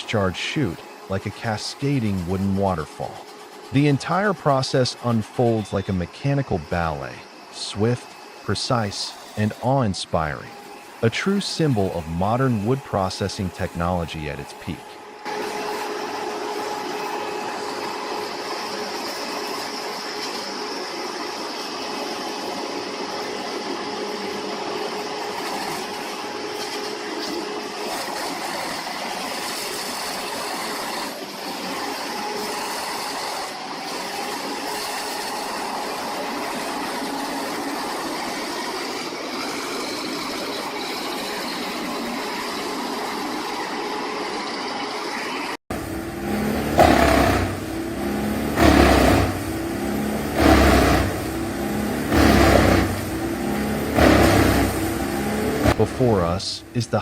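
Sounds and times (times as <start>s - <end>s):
high whine: 0.0s - 20.3s, 44.4s - 57.0s
wood chipper droning: 0.0s - 57.0s.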